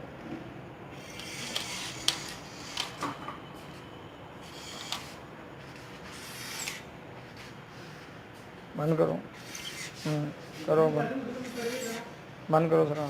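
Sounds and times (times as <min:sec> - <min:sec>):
robotic arm motor whir: 0:01.0 - 0:03.0, 0:04.4 - 0:05.2, 0:05.8 - 0:06.9, 0:09.4 - 0:10.1.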